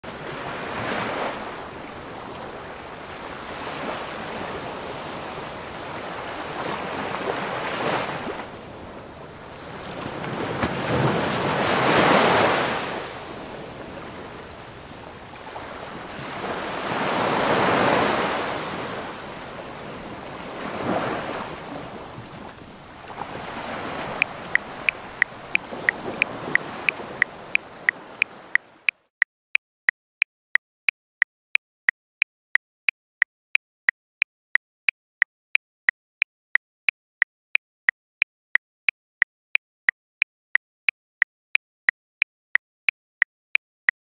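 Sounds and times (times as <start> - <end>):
sea waves breaking on shore: 0.0 - 28.9.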